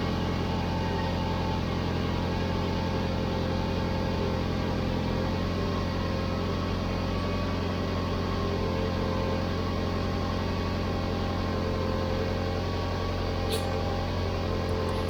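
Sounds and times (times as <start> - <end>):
car engine idling: 5.1 - 15.0.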